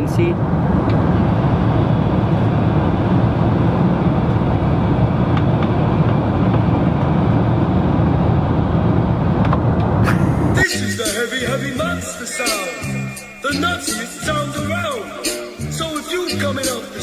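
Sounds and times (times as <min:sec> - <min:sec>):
airliner cabin drone: 0:00.0 - 0:16.3.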